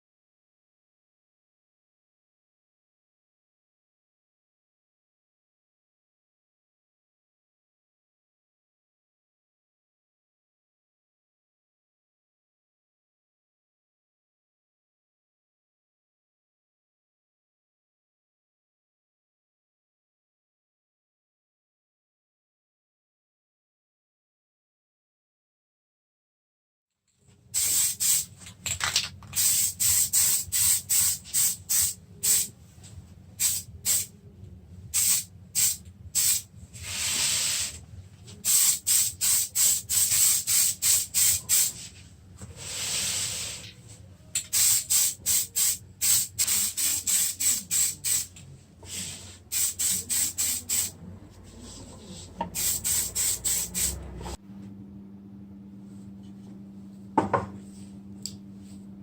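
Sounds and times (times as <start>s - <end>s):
steady low hum: 29.7s - 36.9s, 43.6s - 59.0s
spray hissing bursts: 44.6s - 48.3s, 48.9s - 50.9s, 52.6s - 54.0s.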